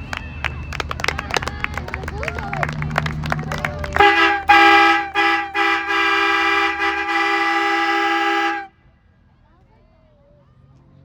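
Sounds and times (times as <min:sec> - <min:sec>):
voices: 0:00.0 - 0:08.7
loud horn honking: 0:03.4 - 0:08.7.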